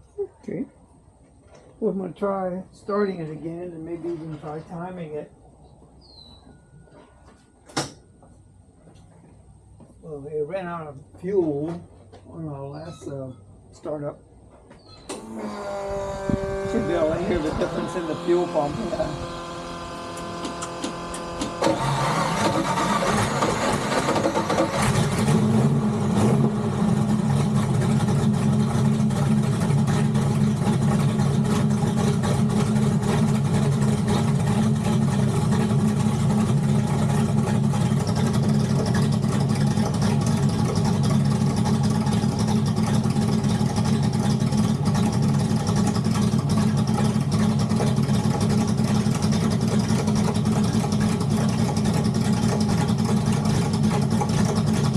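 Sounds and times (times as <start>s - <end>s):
car engine starting and idling: 15.0s - 54.9s.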